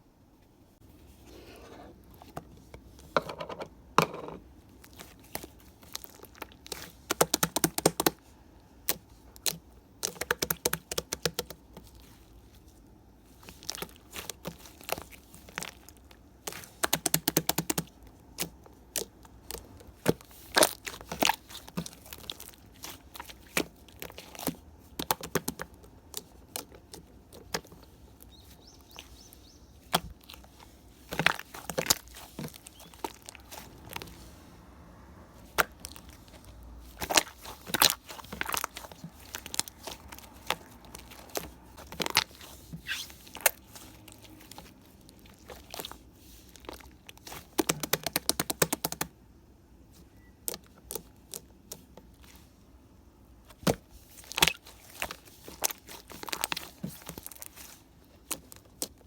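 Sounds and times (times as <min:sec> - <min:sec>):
slime crackling and clicking: 0:05.0 - 0:08.2, 0:16.5 - 0:27.8, 0:35.5 - 0:43.6.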